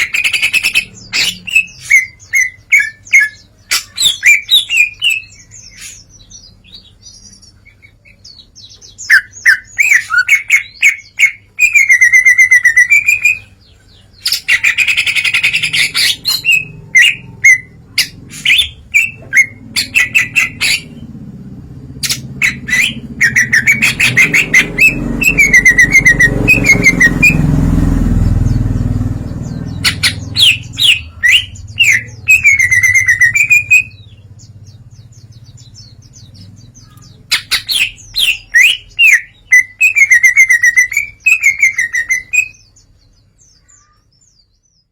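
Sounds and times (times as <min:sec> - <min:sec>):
bird singing mimicked calls: 0:00.0 - 0:44.9
low rumble: 0:15.5 - 0:37.0.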